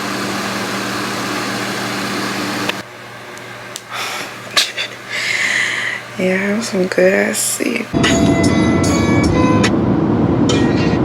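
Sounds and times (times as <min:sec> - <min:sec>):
ventilation fan hum and hiss: 0:00.0 - 0:11.0.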